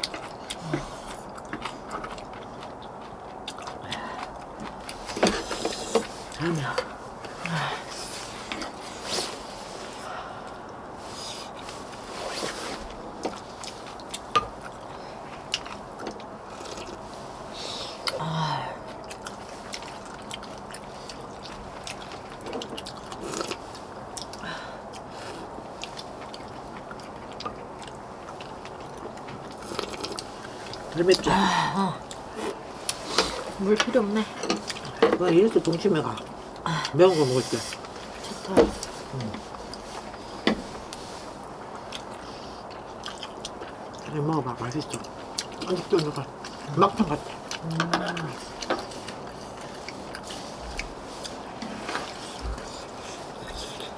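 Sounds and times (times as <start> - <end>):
person chewing food: 0.0 - 53.9.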